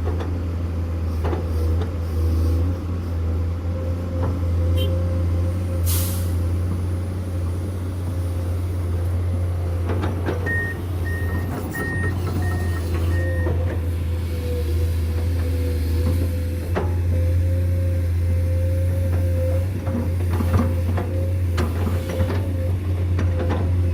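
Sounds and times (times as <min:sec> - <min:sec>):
diesel machinery engine drone: 0:00.0 - 0:23.9
reversing alarm beeps: 0:10.4 - 0:13.6.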